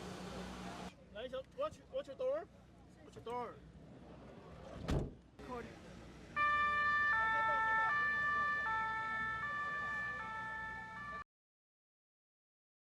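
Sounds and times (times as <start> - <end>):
two-tone ambulance siren: 6.4 - 11.3.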